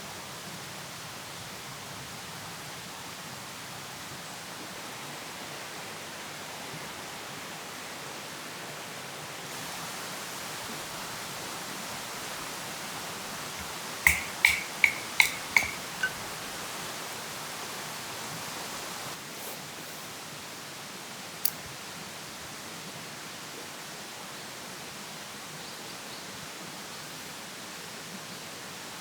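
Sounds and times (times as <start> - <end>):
background hiss: 9.5 - 17.2
sharp ringing clicks: 13.6 - 16.2.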